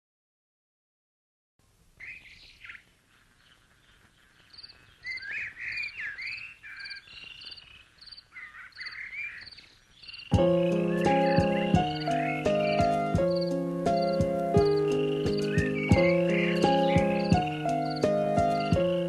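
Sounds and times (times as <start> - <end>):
birds singing whistled phrases: 2.0 - 19.0
loud music: 10.4 - 19.0.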